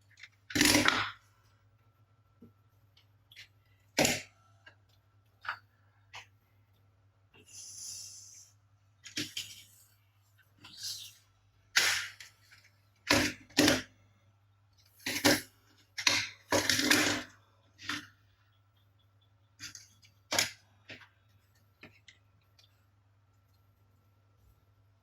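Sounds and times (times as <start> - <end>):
plastic toys knocking and rattling: 0.1 - 1.2, 3.3 - 6.3, 9.0 - 9.8, 11.7 - 14.0, 14.9 - 18.2, 19.6 - 21.1.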